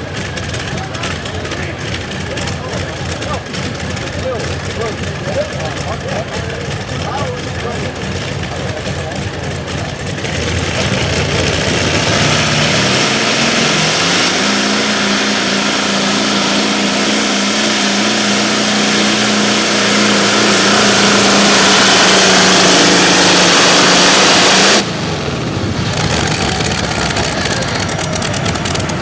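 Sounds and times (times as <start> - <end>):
tractor engines at full throttle: 0.0 - 29.0.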